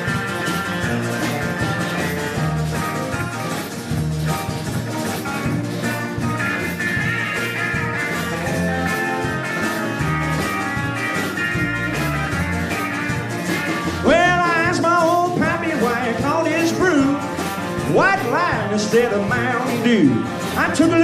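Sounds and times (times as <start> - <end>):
drums: 0.0 - 21.0
electric bass: 0.0 - 21.0
guitar solo: 0.0 - 21.0
sliding vocal line: 14.0 - 21.0.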